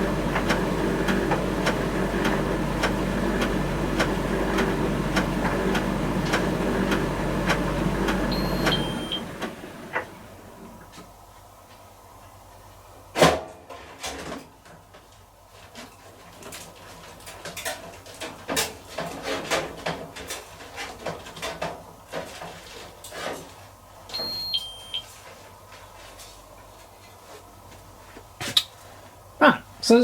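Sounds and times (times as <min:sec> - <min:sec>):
dryer drum knocking: 0:00.0 - 0:10.8
low steady hum: 0:00.0 - 0:10.9
two-note electronic beep: 0:08.3 - 0:09.2.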